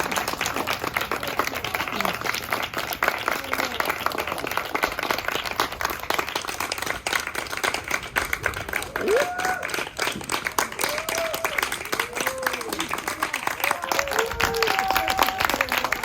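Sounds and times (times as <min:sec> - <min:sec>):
voices: 0:00.0 - 0:05.0
audience applauding: 0:00.0 - 0:16.0.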